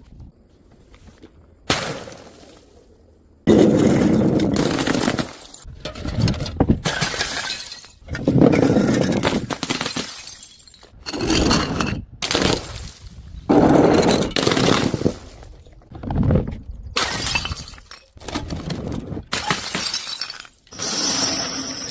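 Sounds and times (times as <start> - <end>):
glass bottles shattering: 6.8 - 15.7, 17.0 - 18.2, 19.3 - 21.9.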